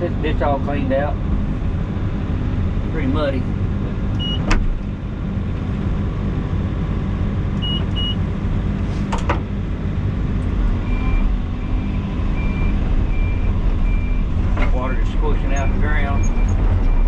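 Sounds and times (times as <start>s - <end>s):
heavy machine engine running: 0.0s - 17.0s
repeating short beep: 4.2s - 4.5s.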